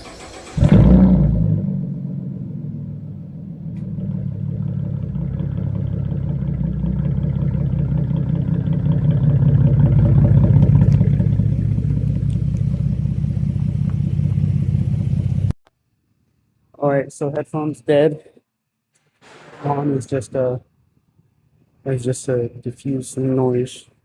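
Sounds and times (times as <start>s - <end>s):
engine running: 0.0s - 15.6s.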